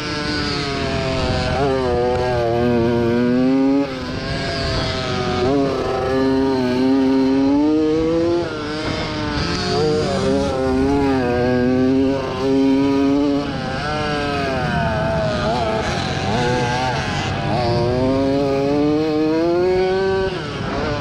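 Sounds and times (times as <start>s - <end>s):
two-stroke motorcycle engine racing: 0.0s - 21.0s.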